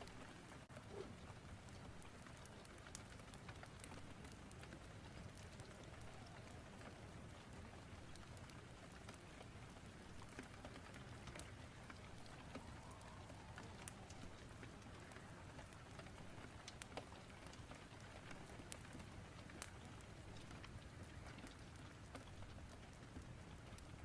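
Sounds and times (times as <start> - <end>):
fire crackling and popping: 0.0 - 24.0
rain hissing: 0.0 - 24.0.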